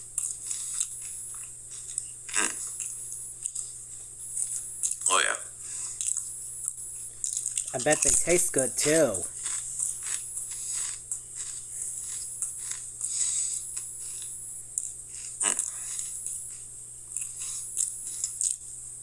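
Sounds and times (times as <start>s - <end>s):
steady low hum: 0.0s - 18.0s
person chewing potato crisps: 0.2s - 3.8s, 4.4s - 5.1s, 5.9s - 6.3s, 7.2s - 8.5s, 9.4s - 16.1s, 17.1s - 18.7s.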